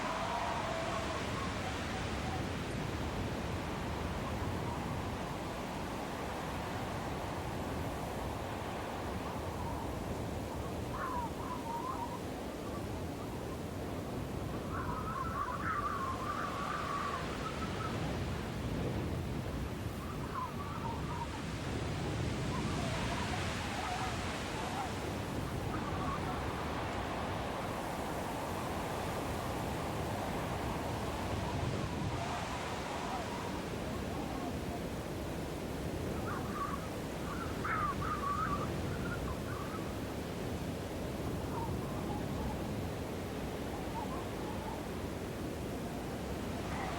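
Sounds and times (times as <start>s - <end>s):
snowstorm wind hissing: 0.0s - 46.9s
faint bird call: 9.5s - 13.4s, 14.6s - 18.0s, 35.9s - 40.0s.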